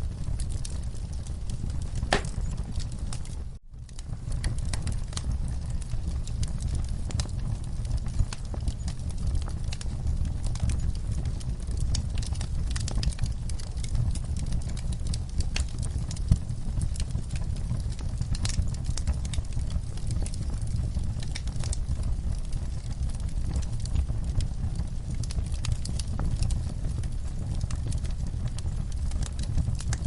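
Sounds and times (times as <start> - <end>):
flames rumbling: 0.0 - 30.0
logs crackling and popping: 0.0 - 30.0.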